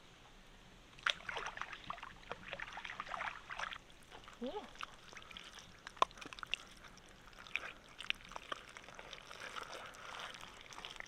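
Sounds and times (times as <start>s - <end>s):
water dripping and splashing: 1.0s - 11.0s.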